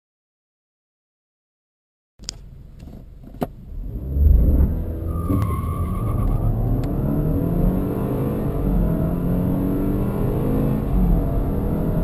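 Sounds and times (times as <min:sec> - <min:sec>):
car engine accelerating hard: 0:03.6 - 0:12.0.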